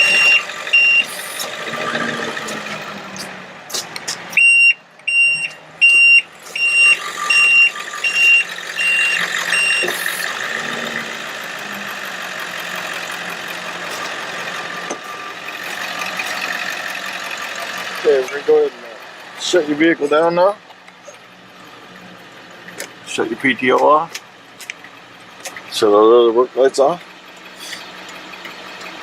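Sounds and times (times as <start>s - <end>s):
truck alarm beeping: 0.0s - 3.2s, 4.3s - 13.8s
truck engine and hydraulic pump: 0.0s - 29.0s.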